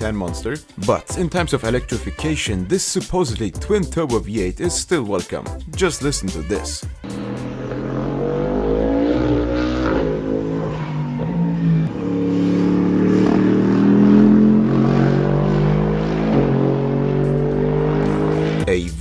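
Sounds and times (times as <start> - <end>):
car engine accelerating hard: 7.0 - 18.8.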